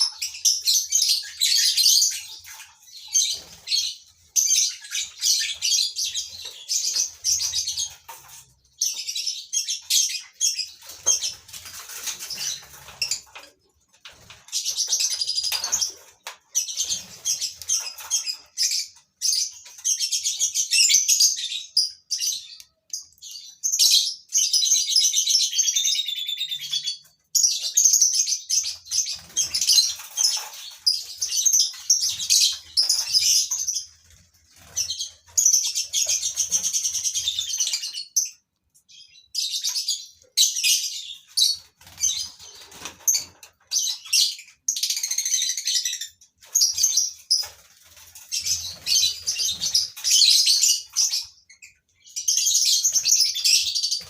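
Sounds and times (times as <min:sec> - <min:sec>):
birds chattering and chirping: 0:00.0 - 0:54.0.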